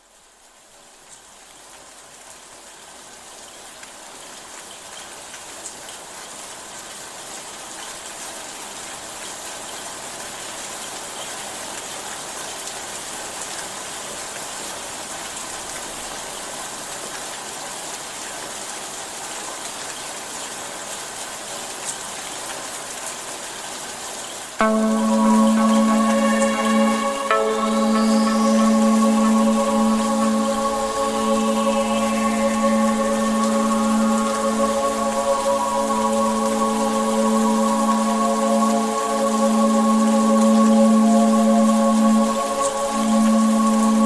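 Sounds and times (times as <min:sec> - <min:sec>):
steady rain falling: 0:15.1 - 0:44.0.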